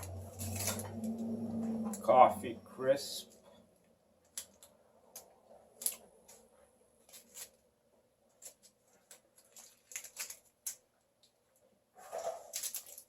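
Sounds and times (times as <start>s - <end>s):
wrapper crackling: 0.0s - 2.1s, 4.2s - 11.0s, 12.0s - 13.0s.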